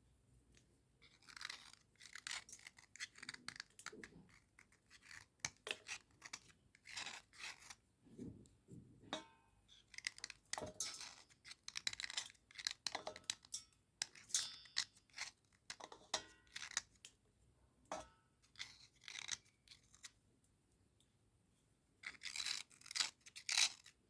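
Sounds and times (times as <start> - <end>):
slate pencil scratching slate: 4.3 - 7.8.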